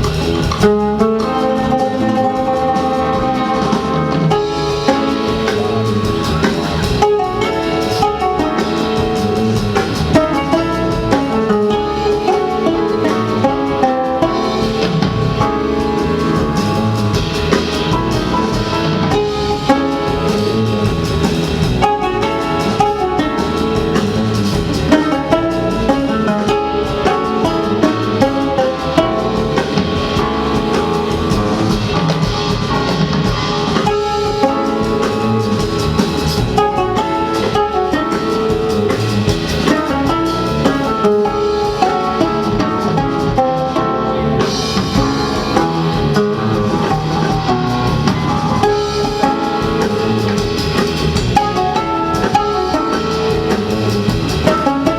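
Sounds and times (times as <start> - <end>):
drum kit keeping time: 0.0 - 54.9
jazz band playing: 0.0 - 54.9
plucked strings: 0.0 - 54.9.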